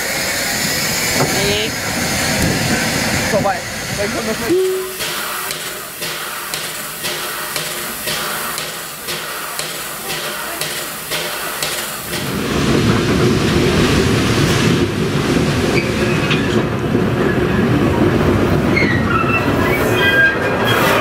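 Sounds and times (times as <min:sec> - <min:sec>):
train wheels rumbling on rail: 0:00.0 - 0:21.0
high wheel squeal: 0:18.7 - 0:21.0.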